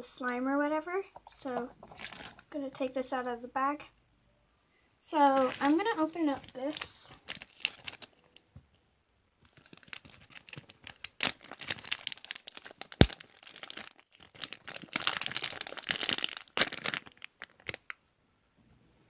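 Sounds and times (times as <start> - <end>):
packaging bag crinkling: 1.8 - 2.4, 5.2 - 8.4, 9.4 - 18.0.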